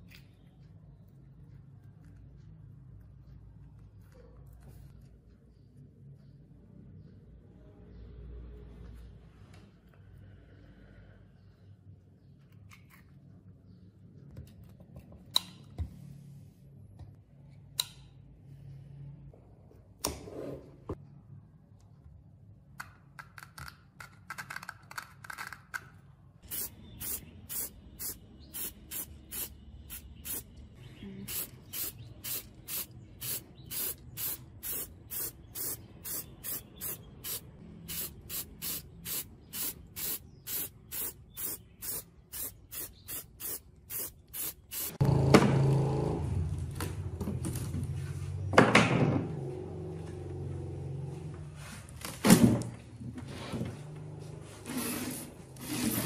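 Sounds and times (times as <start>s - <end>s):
short hissing spray bursts: 26.5s - 30.5s, 31.3s - 45.0s.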